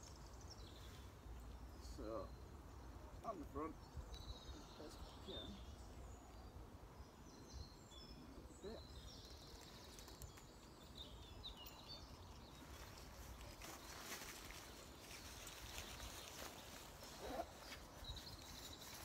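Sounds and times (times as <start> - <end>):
small birds chirping and whistling: 3.2 - 19.0
soft rustling: 12.4 - 19.0.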